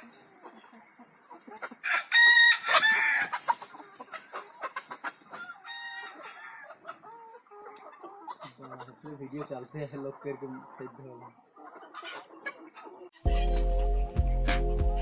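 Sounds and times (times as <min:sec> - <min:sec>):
hens clucking: 0:00.0 - 0:14.1
rooster crowing: 0:01.8 - 0:03.4, 0:05.6 - 0:06.7.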